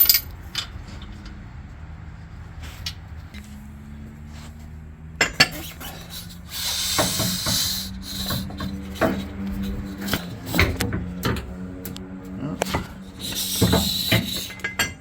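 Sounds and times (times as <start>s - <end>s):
metal part scraping: 5.3s - 11.6s, 12.6s - 15.0s.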